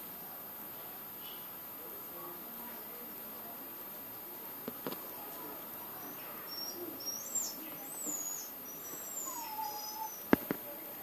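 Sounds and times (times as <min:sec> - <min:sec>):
birds chirping: 0:05.9 - 0:10.5.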